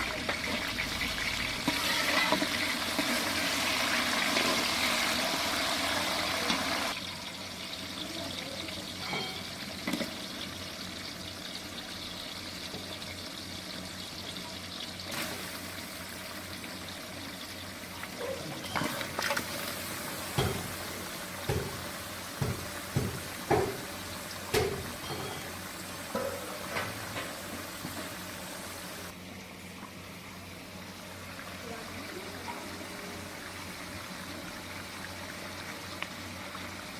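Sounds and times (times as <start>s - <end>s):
water running: 16.6s - 29.2s.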